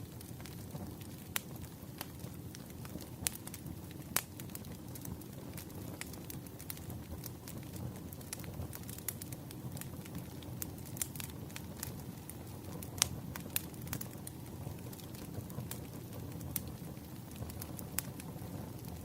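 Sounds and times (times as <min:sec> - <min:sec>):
wood fire rumbling: 0:00.0 - 0:19.0
firewood popping and snapping: 0:00.2 - 0:12.2, 0:12.8 - 0:19.0.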